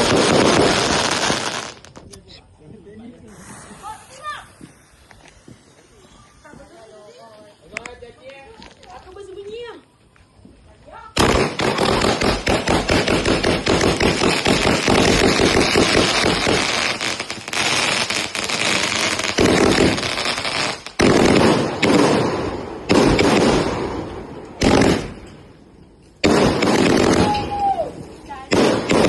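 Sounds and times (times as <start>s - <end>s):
fireworks cracks and bangs: 0.0s - 2.1s, 2.7s - 9.6s, 11.2s - 29.0s.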